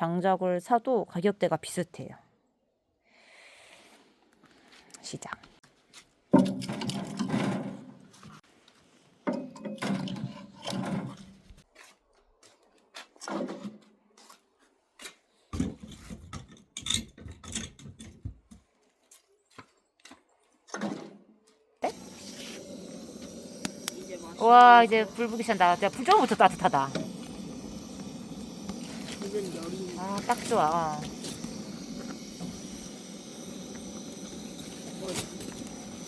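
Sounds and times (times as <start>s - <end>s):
firewood scraping and knocking: 6.3s - 8.4s, 9.2s - 11.9s, 22.0s - 36.0s.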